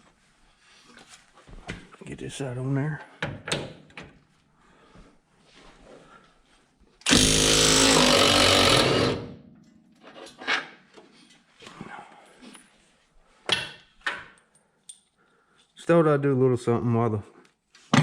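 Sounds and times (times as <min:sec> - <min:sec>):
power tool running: 0:07.1 - 0:09.4.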